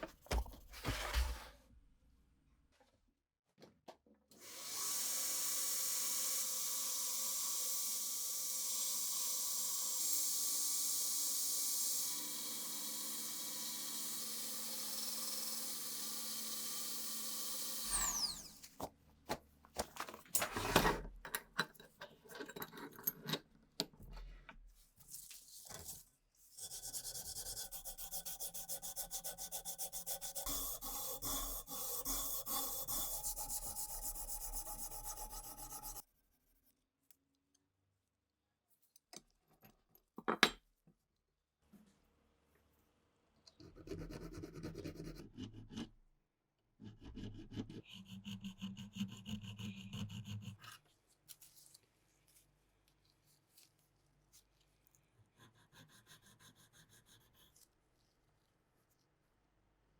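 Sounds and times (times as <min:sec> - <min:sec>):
power tool whining: 0:08.9 - 0:18.6
hand rubbing and filing: 0:26.5 - 0:36.6, 0:46.8 - 0:52.4, 0:55.3 - 0:57.8.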